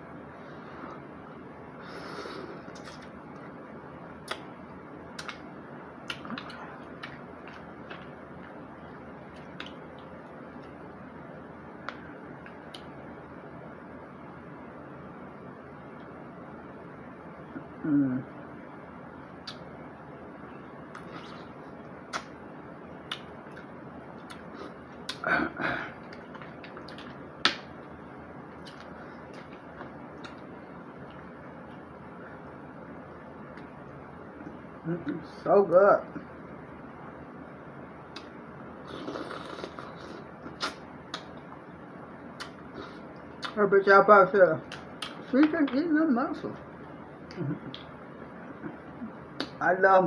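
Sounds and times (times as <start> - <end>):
steady low hiss: 0.0 - 50.0
eating clicks and wet smacks: 2.7 - 3.6, 4.2 - 10.8, 11.8 - 13.0, 19.4 - 19.8, 20.9 - 25.3, 26.0 - 31.9, 33.4 - 35.2, 38.1 - 43.6, 44.6 - 45.8, 47.2 - 49.6
sharp eating clicks: 4.2 - 4.5, 5.2 - 8.6, 42.4 - 42.8, 44.7 - 45.2
mouth sound: 17.6 - 18.4, 38.2 - 41.2.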